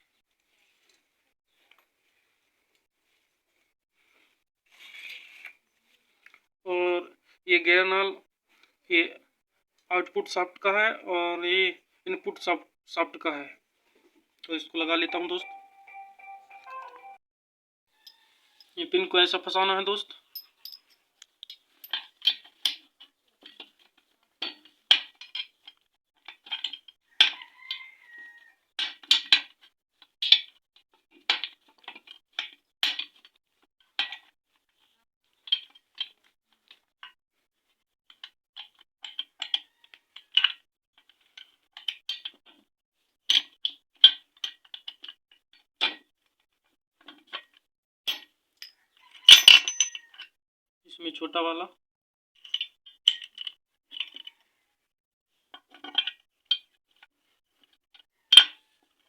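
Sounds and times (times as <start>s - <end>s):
metal parts clinking: 20.4s - 21.0s, 49.3s - 50.0s.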